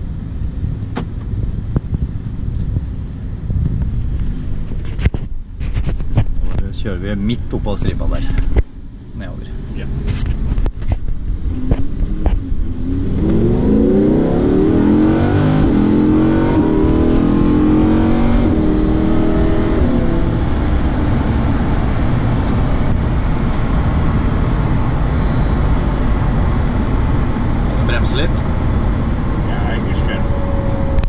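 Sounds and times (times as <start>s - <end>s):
wind and road noise: 0.0s - 31.0s
gear upshifts: 9.5s - 23.9s
sports car engine accelerating: 9.5s - 31.0s.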